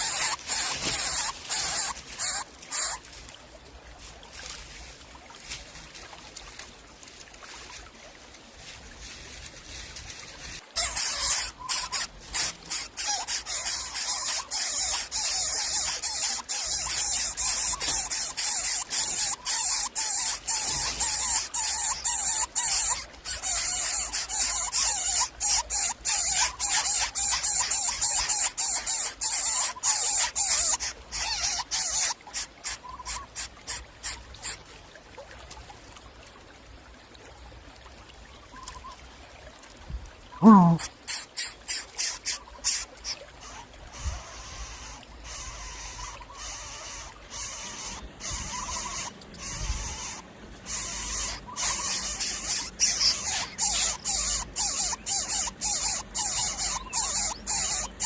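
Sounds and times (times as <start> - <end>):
young animals hissing: 0.0 - 3.0, 40.4 - 58.0.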